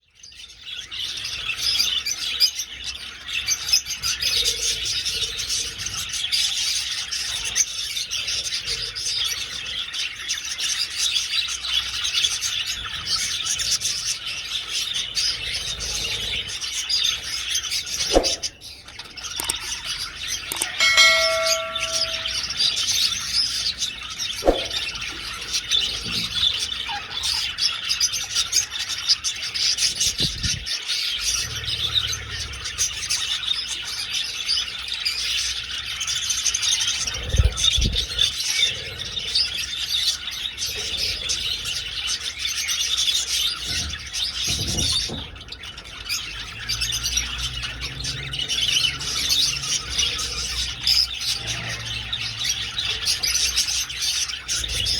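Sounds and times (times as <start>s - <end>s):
short ringing tone: 20.5s - 22.6s
budgerigars chattering and chirping: 24.6s - 54.9s.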